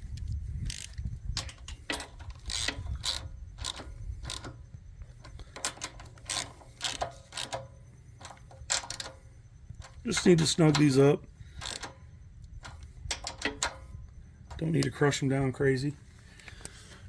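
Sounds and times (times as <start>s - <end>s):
low steady hum: 0.0s - 17.0s
socket ratchet clicking: 0.1s - 4.6s, 5.2s - 9.2s, 9.8s - 13.8s.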